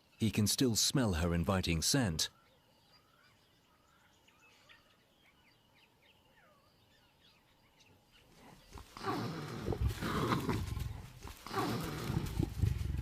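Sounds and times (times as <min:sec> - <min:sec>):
faint bird chirps: 0:02.2 - 0:09.8
leopard growling: 0:08.4 - 0:13.0.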